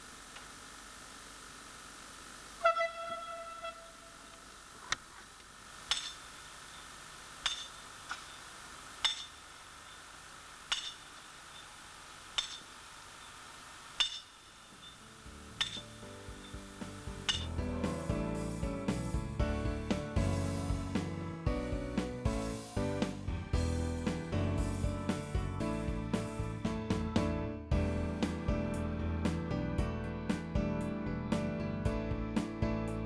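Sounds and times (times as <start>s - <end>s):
train horn note: 2.6s - 4.4s
wheels clicking over rail joints: 2.8s - 18.0s.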